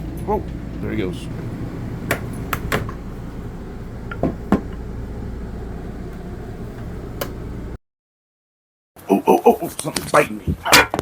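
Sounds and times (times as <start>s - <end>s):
steady low hum: 0.0s - 7.8s
sharp knocks and clicks: 1.3s - 3.0s, 4.1s - 4.8s.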